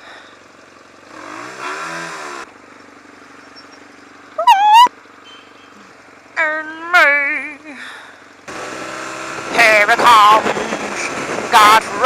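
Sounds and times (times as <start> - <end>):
motorcycle engine revving: 0.0 - 6.4, 8.0 - 12.0
person shouting: 4.4 - 4.9.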